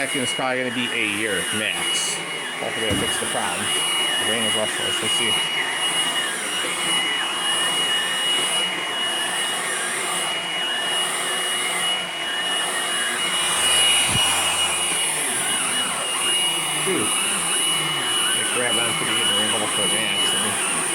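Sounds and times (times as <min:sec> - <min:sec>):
vacuum cleaner running: 0:00.0 - 0:20.9.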